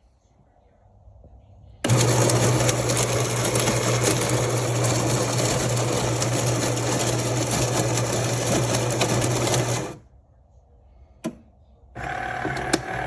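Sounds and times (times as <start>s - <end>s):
coffee grinder whirring: 1.9s - 10.0s, 12.0s - 13.0s.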